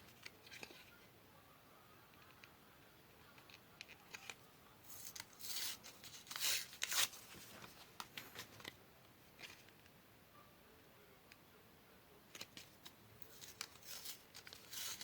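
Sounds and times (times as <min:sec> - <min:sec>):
paper rustling: 0:04.1 - 0:08.8, 0:12.3 - 0:15.0
scissors snipping paper: 0:13.3 - 0:15.0.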